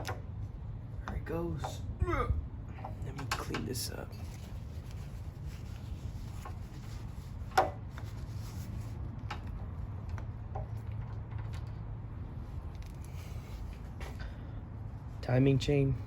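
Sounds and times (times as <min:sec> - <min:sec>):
steady low hum: 0:00.0 - 0:16.0
engine parts and tools clicking: 0:09.2 - 0:14.4.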